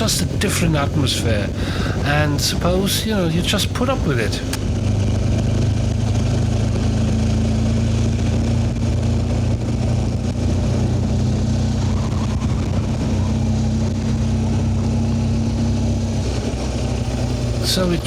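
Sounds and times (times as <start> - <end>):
wind rushing: 0.0 - 5.2, 17.0 - 18.0
motorcycle engine cruising: 0.0 - 18.0.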